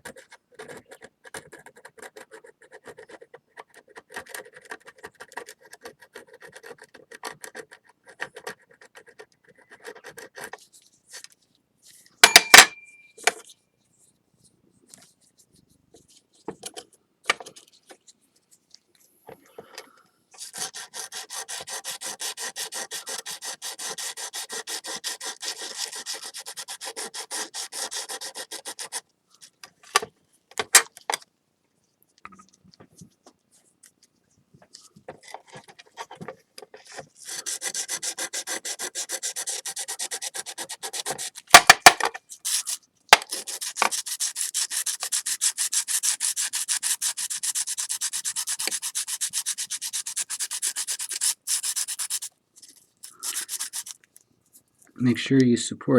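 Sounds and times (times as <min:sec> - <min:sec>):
sandpaper scrubbing glazed stoneware: 0:20.4 - 0:29.0, 0:36.8 - 0:52.3, 0:53.0 - 0:54.0.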